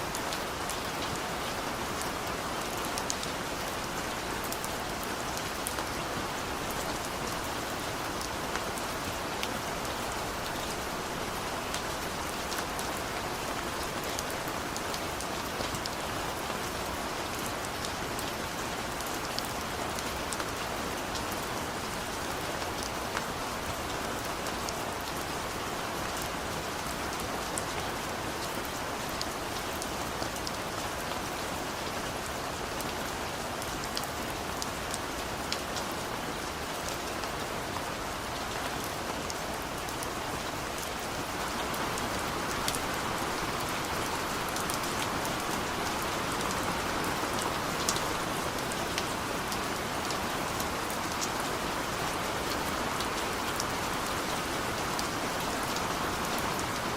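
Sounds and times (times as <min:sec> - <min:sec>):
raindrops pattering on leaves: 0:00.0 - 0:56.9
heavy rain hissing: 0:41.0 - 0:50.7.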